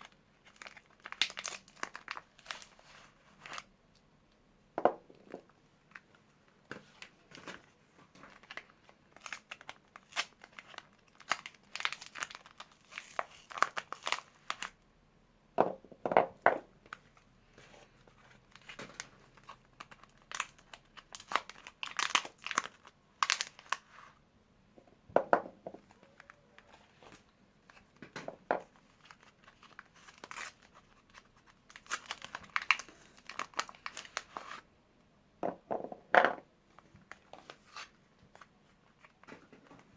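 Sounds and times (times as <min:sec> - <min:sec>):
soap wrappers tearing and crinkling: 0:00.0 - 0:03.7, 0:08.2 - 0:14.8, 0:18.1 - 0:24.0, 0:28.6 - 0:34.6.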